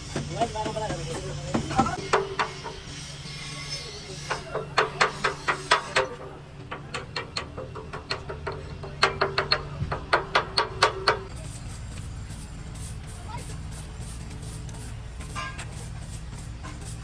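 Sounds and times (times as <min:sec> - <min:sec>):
hammer blows on metal: 0:00.0 - 0:13.2.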